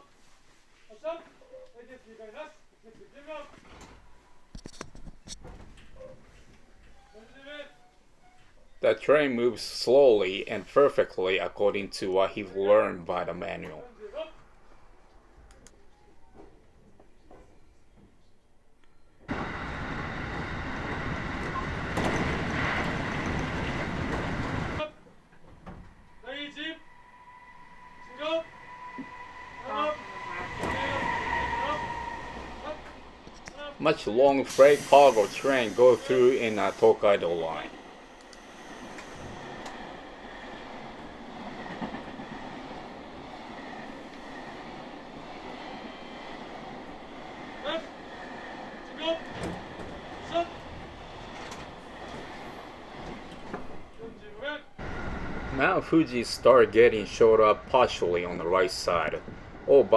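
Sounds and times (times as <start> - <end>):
train rumbling on rails: 19.3 - 59.9
faint high whine: 25.7 - 40.4.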